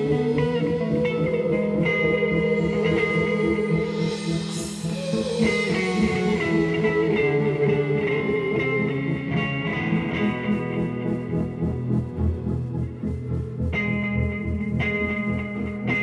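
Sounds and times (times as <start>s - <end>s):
cymbal wash: 0.0s - 9.2s
psychedelic rock band playing live: 0.0s - 11.3s
electric guitar: 0.0s - 16.0s.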